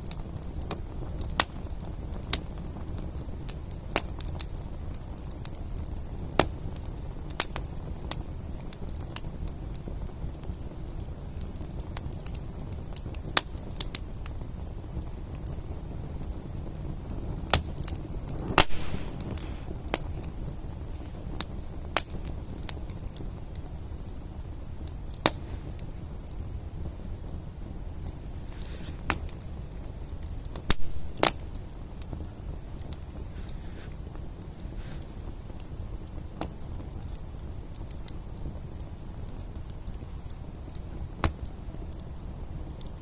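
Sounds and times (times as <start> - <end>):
campfire crackling and popping: 0.0 - 43.0.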